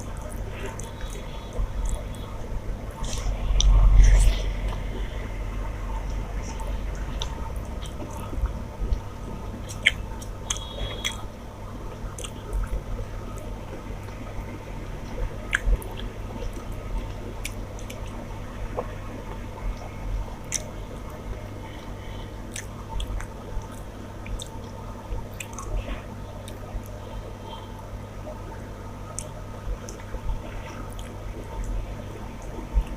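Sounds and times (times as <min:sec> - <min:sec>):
person chewing food: 0:00.0 - 0:02.4, 0:09.6 - 0:11.3, 0:12.0 - 0:14.2, 0:15.1 - 0:19.4, 0:20.4 - 0:20.8, 0:21.7 - 0:27.6.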